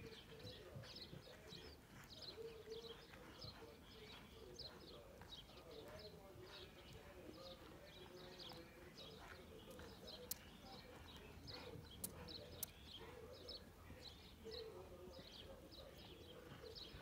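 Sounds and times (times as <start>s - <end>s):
songbirds chirping: 0.0s - 17.0s
sharp clicks: 12.0s - 12.8s.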